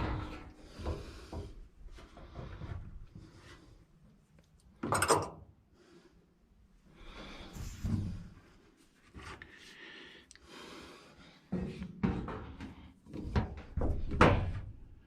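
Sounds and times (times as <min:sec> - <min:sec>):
objects knocking and clunking: 0:04.8 - 0:05.5, 0:11.6 - 0:14.8.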